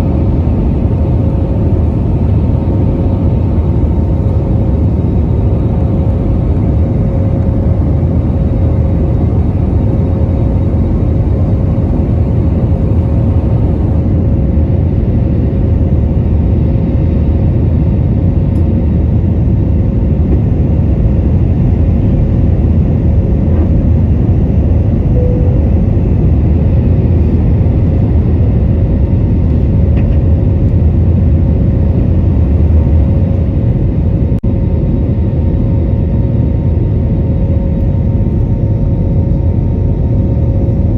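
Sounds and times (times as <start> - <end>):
jet engine and airflow rumble: 0.0 - 40.9
faint steady hum: 25.1 - 28.3.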